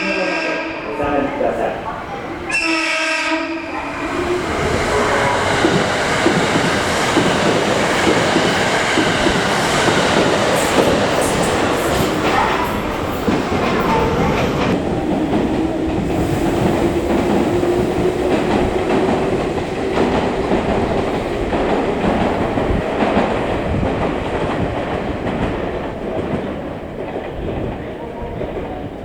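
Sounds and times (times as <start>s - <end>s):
train rumble: 0.0s - 29.0s
train whine: 0.0s - 29.0s.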